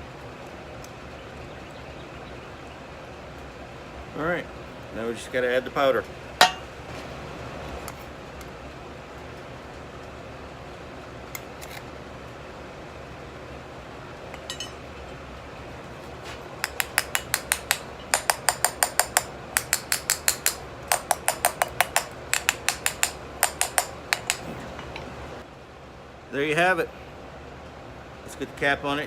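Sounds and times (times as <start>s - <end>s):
light metal-on-metal tapping: 6.4s - 6.7s, 14.3s - 14.8s, 16.6s - 25.1s.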